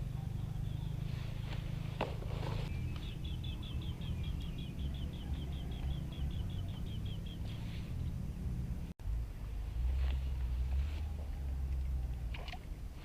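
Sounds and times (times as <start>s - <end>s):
bird chirping rapidly: 0.0s - 1.4s, 2.7s - 8.2s
low rumble: 0.0s - 13.0s.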